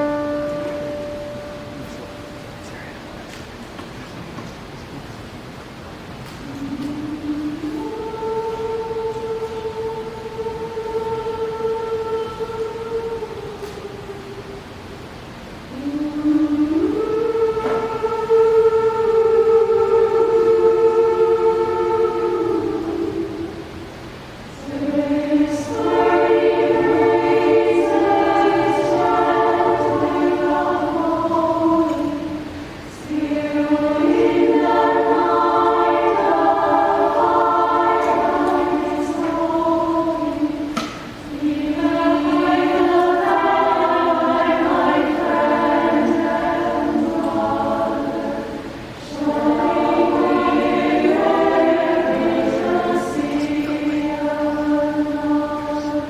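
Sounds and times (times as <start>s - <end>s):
women's choir singing chords: 0.0s - 3.2s, 6.3s - 56.0s.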